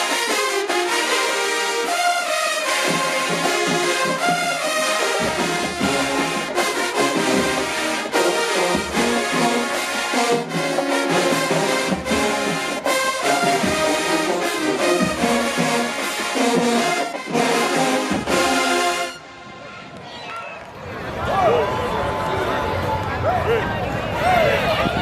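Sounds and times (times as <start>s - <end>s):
trombones and trumpets: 0.0s - 19.9s
marching band playing: 0.0s - 20.2s
percussion hits: 2.6s - 19.0s.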